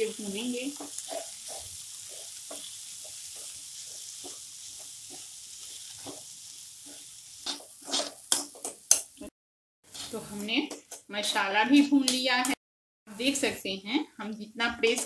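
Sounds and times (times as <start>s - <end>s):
peas sizzling in oil: 0.0s - 9.3s, 9.9s - 13.7s
spatula scraping pan: 0.4s - 9.1s, 9.9s - 10.5s.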